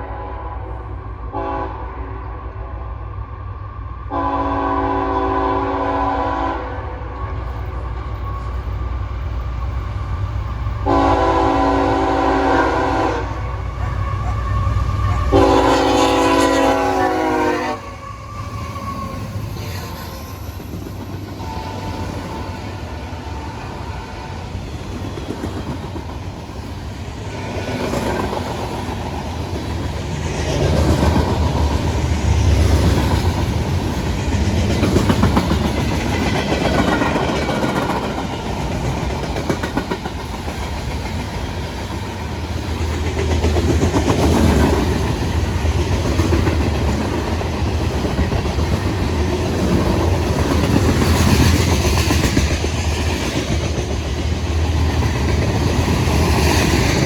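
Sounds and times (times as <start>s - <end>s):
low train rumble: 0.0s - 57.0s
train wheels clattering over rail joints: 27.8s - 57.0s.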